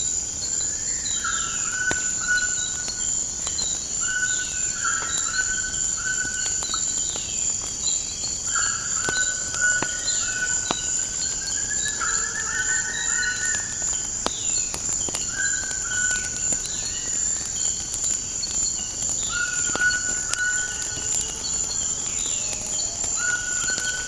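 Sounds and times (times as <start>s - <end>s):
wood fire crackling: 0.0s - 24.0s
high-pitched insect drone: 18.4s - 24.0s.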